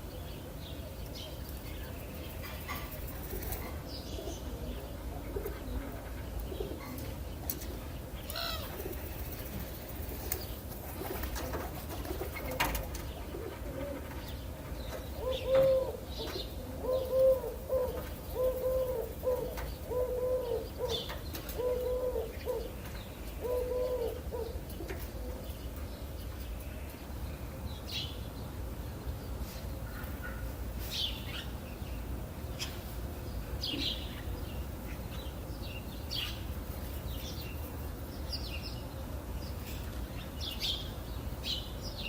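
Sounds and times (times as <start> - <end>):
low cooing bird call: 2.7 - 7.2, 8.3 - 9.1, 15.1 - 25.6.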